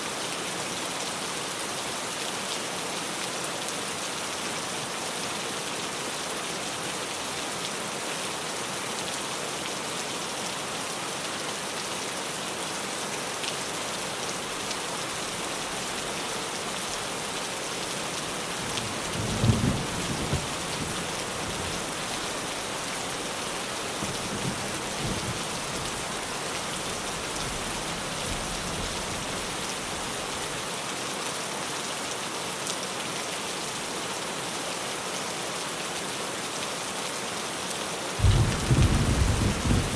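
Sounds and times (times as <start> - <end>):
heavy rain on a tin roof: 0.0 - 39.9
thunder rumbling: 38.2 - 39.9.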